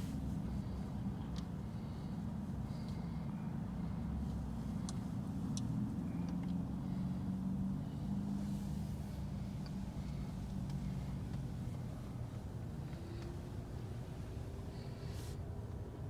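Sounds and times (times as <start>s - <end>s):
car engine rumble: 0.0s - 16.0s
road noise: 0.0s - 16.0s.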